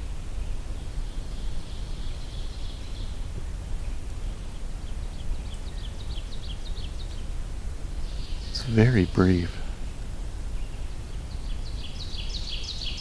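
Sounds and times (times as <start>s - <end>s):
nuthatch song: 8.5s - 9.7s.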